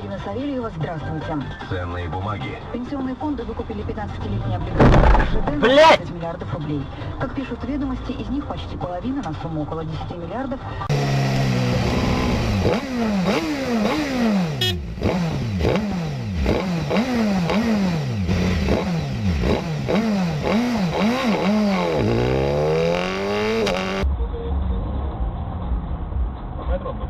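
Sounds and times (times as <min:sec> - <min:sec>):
motorcycle engine revving: 0:10.9 - 0:26.4.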